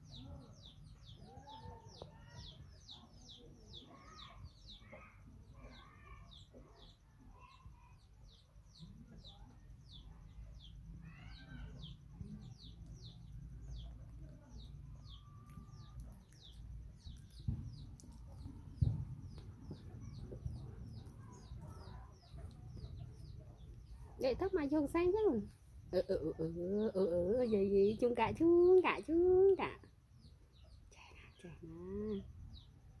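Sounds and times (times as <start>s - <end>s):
birds peeping: 0.0s - 33.0s
dull thumps: 17.4s - 20.8s.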